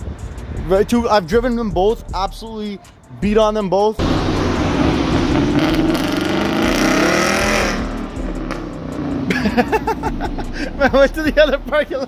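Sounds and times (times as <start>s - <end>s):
car engine accelerating hard: 4.0s - 10.8s.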